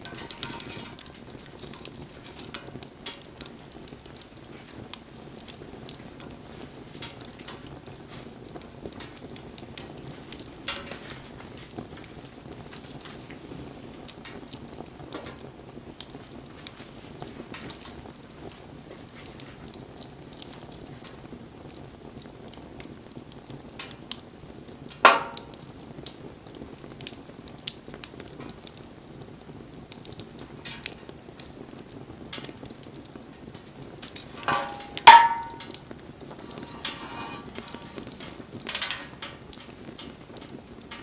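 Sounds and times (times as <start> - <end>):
steady low hiss: 0.0 - 14.1, 33.2 - 41.0
wood fire crackling and popping: 0.0 - 41.0.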